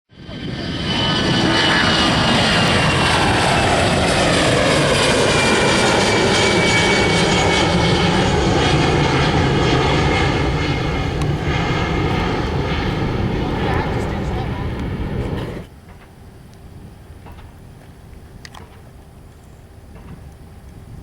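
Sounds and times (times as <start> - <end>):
jet engines roaring: 0.1 - 15.7.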